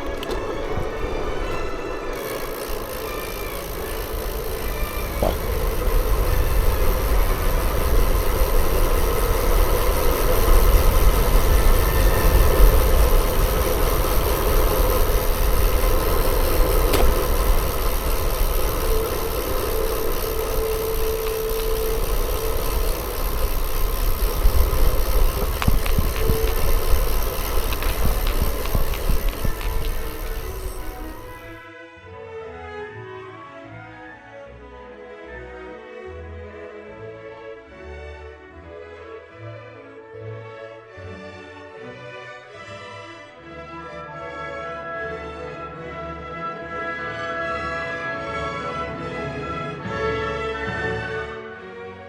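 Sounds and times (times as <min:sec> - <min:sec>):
wind and road noise: 0:00.0 - 0:31.6.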